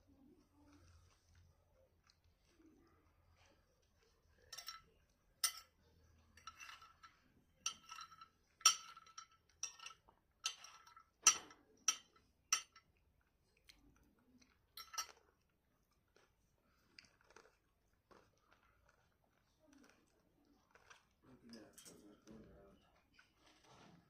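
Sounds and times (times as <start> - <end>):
metal cutlery clinking on a plate: 4.5 - 5.8, 6.4 - 12.9, 14.7 - 15.2, 21.6 - 22.3.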